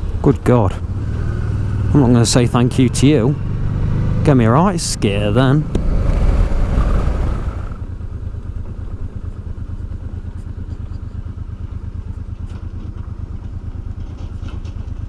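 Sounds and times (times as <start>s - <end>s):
motorcycle engine idling: 0.0s - 15.0s
wind rushing: 5.8s - 7.8s.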